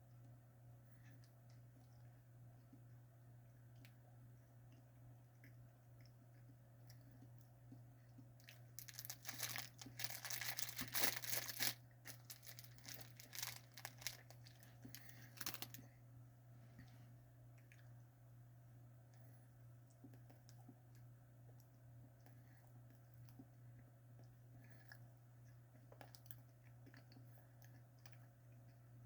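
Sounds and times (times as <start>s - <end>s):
faint low hum: 0.0s - 29.0s
plastic wrapper crinkling: 8.4s - 15.8s.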